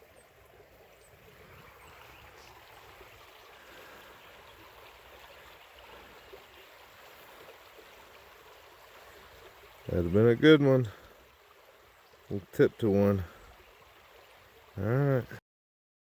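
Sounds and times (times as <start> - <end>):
creek water babbling: 0.0 - 15.4.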